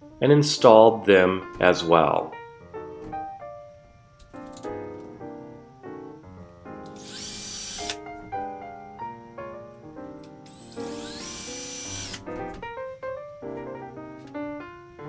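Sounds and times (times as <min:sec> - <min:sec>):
piano music: 0:00.0 - 0:15.0
power drill running: 0:06.9 - 0:08.0, 0:10.3 - 0:12.3.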